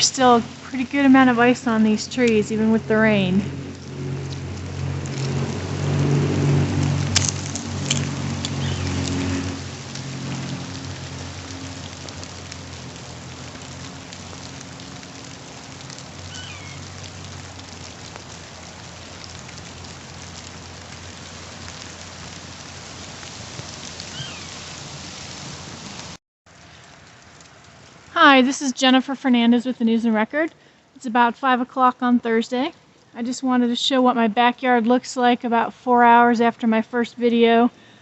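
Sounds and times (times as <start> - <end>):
low hum: 0.0 - 23.2
steady rain falling: 0.0 - 38.0.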